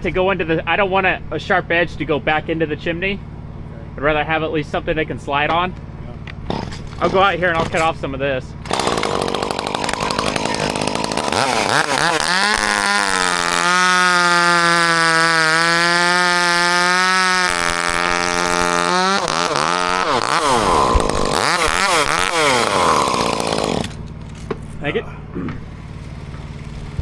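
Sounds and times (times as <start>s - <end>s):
chainsaw revving and cutting wood: 6.4s - 8.0s, 8.6s - 26.6s.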